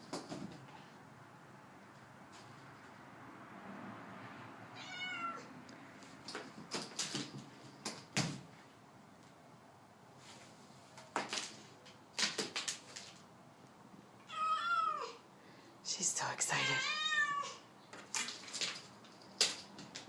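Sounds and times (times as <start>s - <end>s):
cat meowing: 4.8s - 5.5s, 14.2s - 15.2s, 16.6s - 17.7s.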